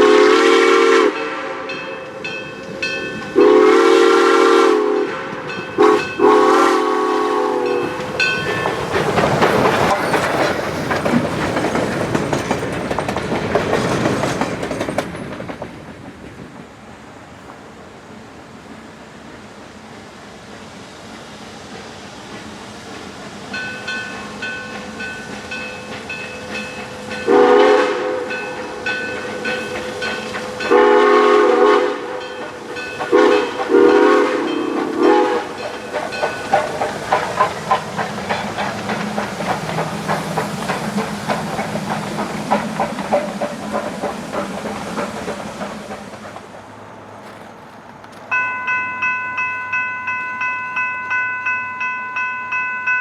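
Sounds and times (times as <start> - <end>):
train horn blasts: 0.0 - 2.3, 3.3 - 8.0, 27.2 - 28.8, 30.6 - 32.4, 33.1 - 35.6
crossing bell ringing: 1.1 - 3.6, 5.4 - 6.8, 7.6 - 10.4, 23.5 - 31.2, 32.1 - 37.7, 48.3 - 53.0
wheels clacking on rail joints: 5.2 - 16.9, 21.7 - 51.4.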